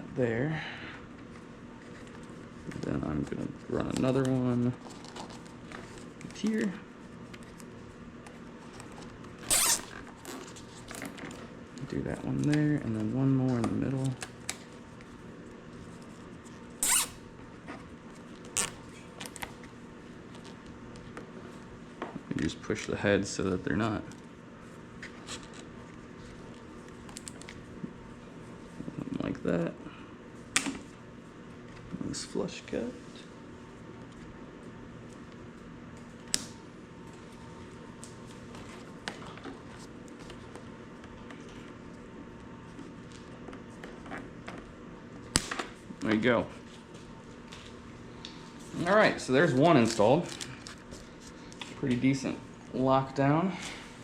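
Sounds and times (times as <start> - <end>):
steady low hum: 0.0 - 54.0
zip ties ratcheting tight: 16.8 - 17.2.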